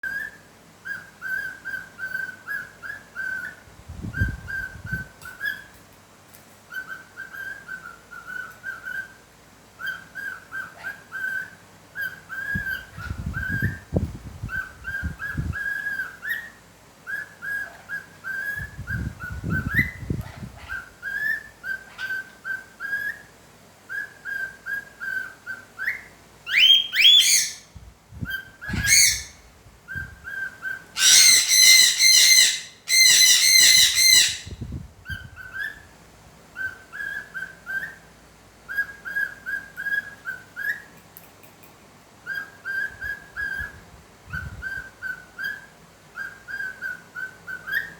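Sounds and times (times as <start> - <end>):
parrot whistling: 23.9 - 27.7, 28.4 - 29.4, 30.3 - 34.6.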